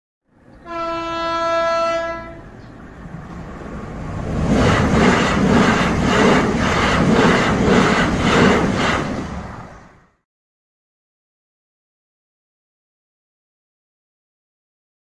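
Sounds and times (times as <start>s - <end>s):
train passing: 0.3s - 10.2s
train horn blast: 0.6s - 2.6s.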